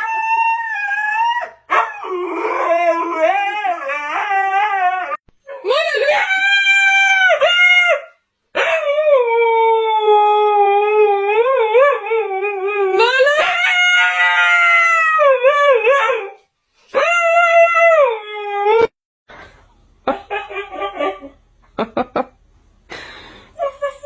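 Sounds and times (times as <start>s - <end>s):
dog howling: 0.0s - 16.4s.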